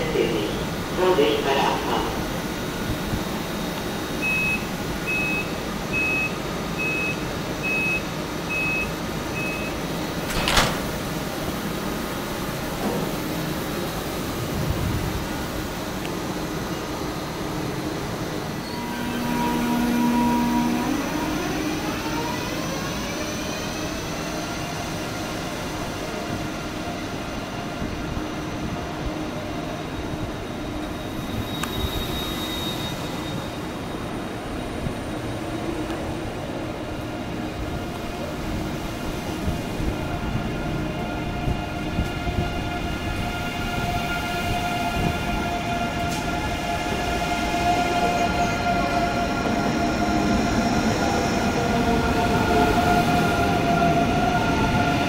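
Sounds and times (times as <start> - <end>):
train rolling rumble: 0.0 - 55.0
door warning beeps: 4.2 - 10.8
train door slamming shut: 10.1 - 11.4, 12.7 - 13.3.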